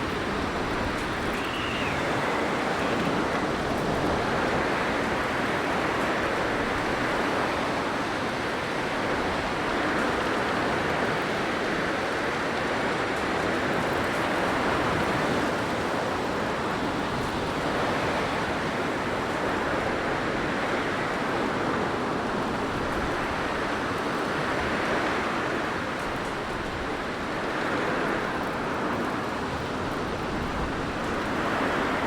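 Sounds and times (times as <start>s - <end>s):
blizzard wind blowing: 0.0s - 10.5s.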